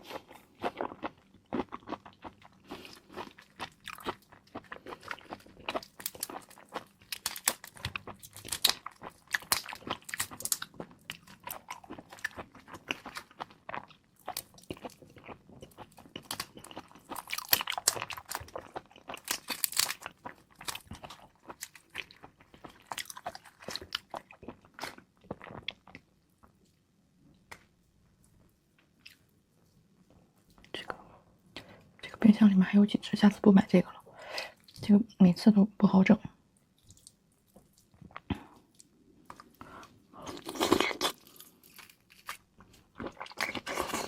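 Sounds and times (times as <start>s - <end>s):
wet chewing: 0.0s - 26.5s, 36.8s - 44.0s
shrimp shells crackling: 16.2s - 21.0s.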